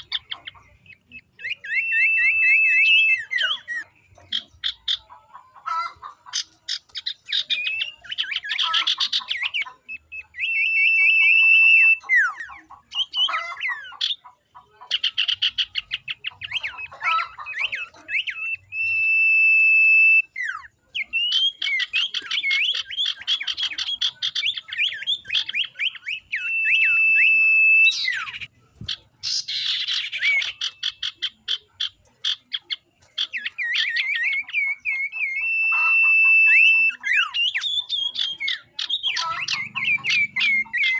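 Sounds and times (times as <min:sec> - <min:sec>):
birds chattering trills: 0:00.0 - 0:40.9
long high bird whistles: 0:01.4 - 0:03.8, 0:09.9 - 0:12.4, 0:17.1 - 0:23.6, 0:24.3 - 0:28.5, 0:33.7 - 0:40.9.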